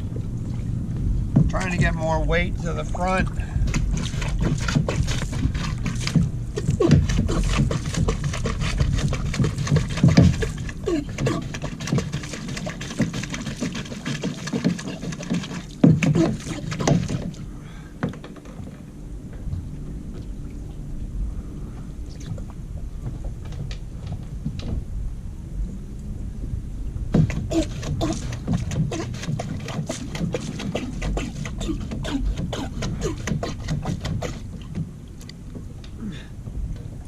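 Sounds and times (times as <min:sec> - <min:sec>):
water gurgling: 0:00.0 - 0:17.5, 0:27.0 - 0:35.2
plastic pump knocks and clatter: 0:01.3 - 0:02.0, 0:03.6 - 0:17.4, 0:23.0 - 0:24.8, 0:27.1 - 0:35.0.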